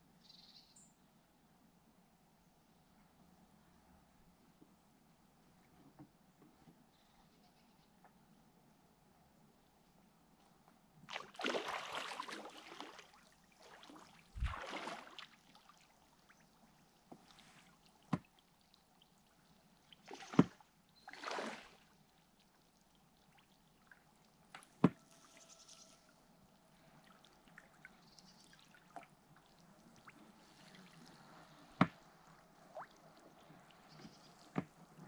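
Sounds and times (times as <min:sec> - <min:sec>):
oars splashing in water: 0:11.1 - 0:15.8, 0:19.9 - 0:21.9.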